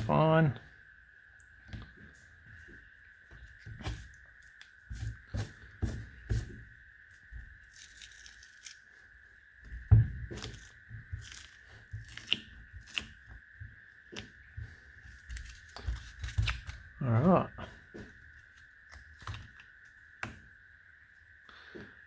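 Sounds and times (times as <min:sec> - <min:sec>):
rubber mold tearing and peeling: 0:10.3 - 0:13.3, 0:15.0 - 0:17.0, 0:18.0 - 0:20.3.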